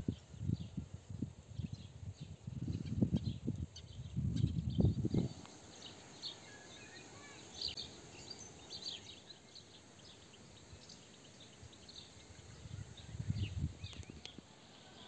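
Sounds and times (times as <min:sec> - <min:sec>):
soft outdoor background hiss: 0:00.0 - 0:15.0
small birds chirping: 0:01.6 - 0:15.0.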